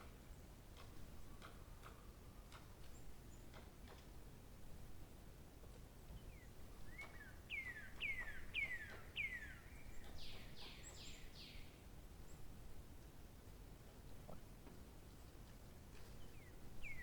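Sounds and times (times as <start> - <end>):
faint outdoor background: 0.0 - 17.0
songbird singing: 6.2 - 12.4, 16.0 - 17.0.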